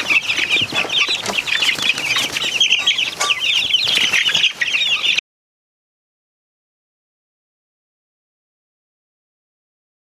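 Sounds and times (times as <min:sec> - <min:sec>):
young chickens peeping: 0:00.0 - 0:05.2.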